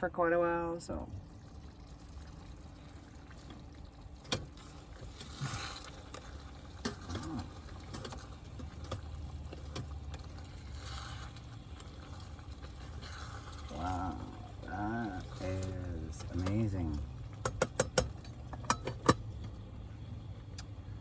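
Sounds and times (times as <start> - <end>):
low steady rumble: 0.0 - 21.0
rice cooker utensils clicking: 17.4 - 19.2.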